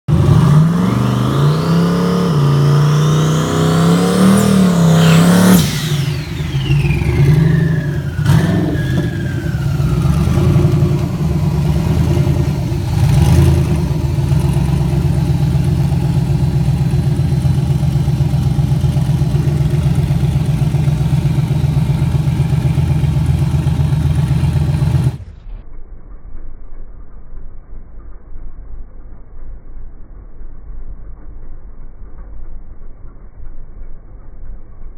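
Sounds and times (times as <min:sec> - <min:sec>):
pickup engine revving: 0:00.0 - 0:25.3
engine pulsing idle: 0:00.1 - 0:25.4
turbo whistle: 0:00.4 - 0:11.5.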